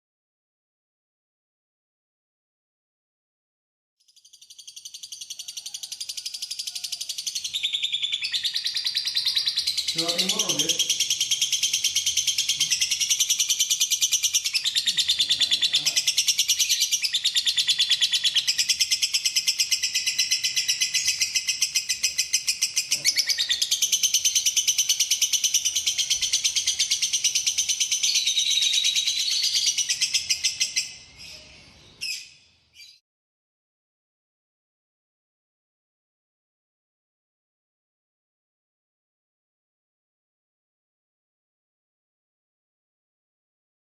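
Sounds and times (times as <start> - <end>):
lovebird chattering chirps and trills: 4.1 - 33.0.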